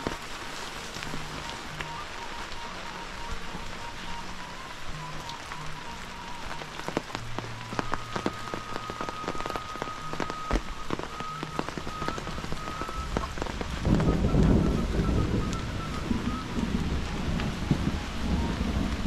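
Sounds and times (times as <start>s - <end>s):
rain with heavy drops: 0.0s - 19.0s.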